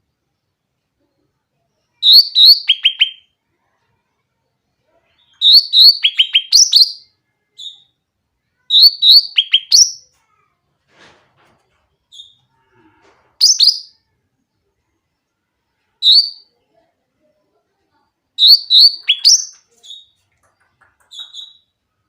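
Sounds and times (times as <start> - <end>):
bird singing whistled notes: 2.0 - 3.2, 5.4 - 7.9, 8.7 - 10.0, 13.4 - 14.0, 16.0 - 16.5, 18.4 - 20.2.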